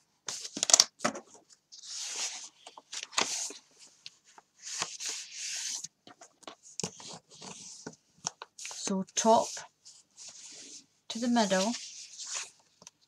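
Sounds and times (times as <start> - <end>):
paper rustling and swishing: 1.8 - 5.9, 8.6 - 12.7.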